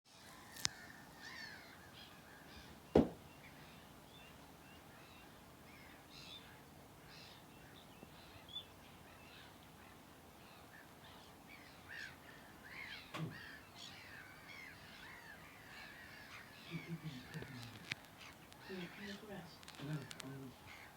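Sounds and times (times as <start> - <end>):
birds giving harsh calls: 0.2 - 20.9
knock: 3.0 - 3.2.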